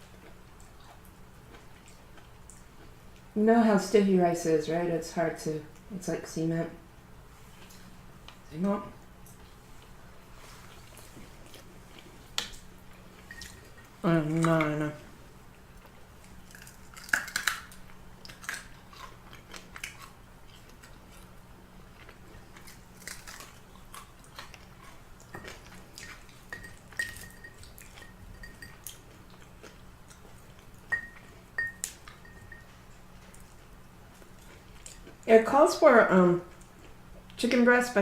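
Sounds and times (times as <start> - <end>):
person chewing crunchy food: 9.3 - 14.6, 15.5 - 35.3.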